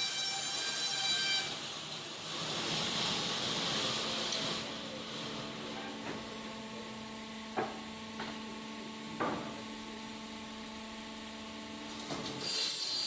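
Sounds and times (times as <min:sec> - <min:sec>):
saw cutting wood: 0:00.0 - 0:01.6.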